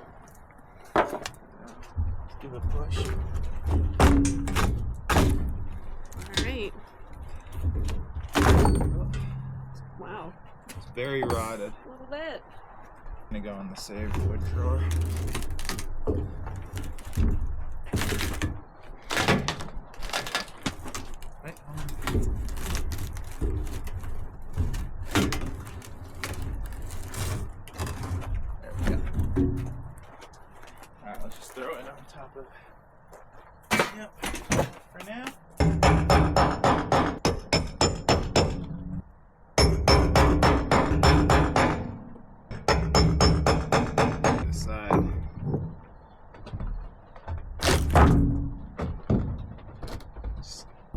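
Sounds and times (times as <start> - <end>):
wooden boards knocking and cracking: 0.9 - 9.7, 14.0 - 30.8, 33.6 - 38.9, 39.6 - 50.9
hammer striking metal: 39.6 - 45.1.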